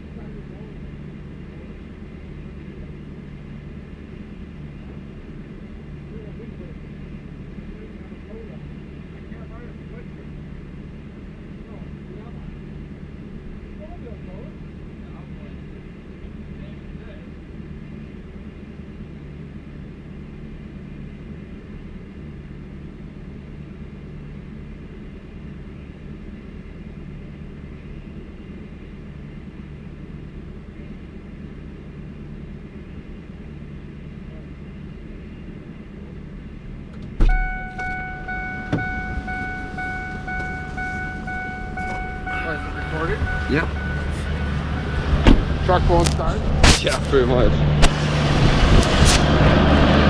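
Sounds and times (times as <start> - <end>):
vehicle engine idling: 0.0 - 50.0
loud thump: 37.1 - 39.3, 45.1 - 45.6, 46.5 - 47.1
electronic warning tone: 37.2 - 45.2.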